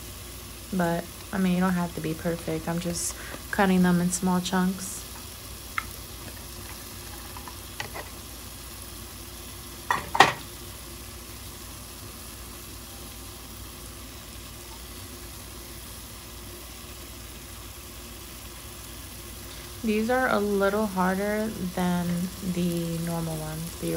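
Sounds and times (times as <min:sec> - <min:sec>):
sizzling in a hot pot: 0:00.0 - 0:23.9.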